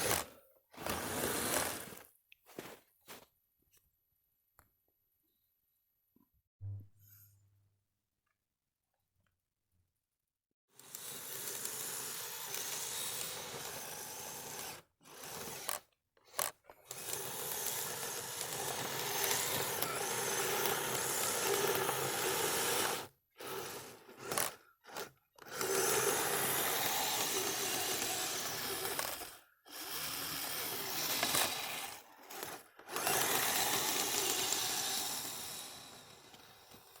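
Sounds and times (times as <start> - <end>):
rc vehicle electric drive running: 0.0 - 2.0, 10.7 - 37.0.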